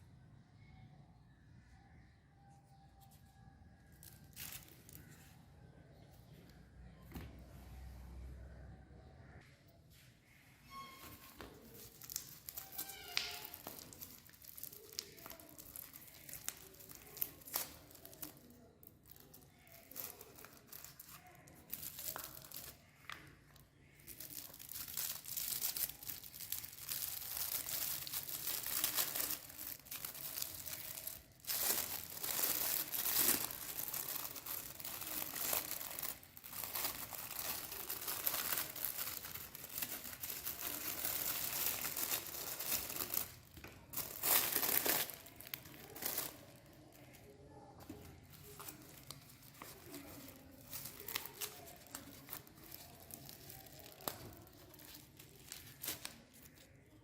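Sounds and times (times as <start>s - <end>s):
wrapper crinkling and tearing: 3.8s - 5.3s, 10.7s - 57.0s.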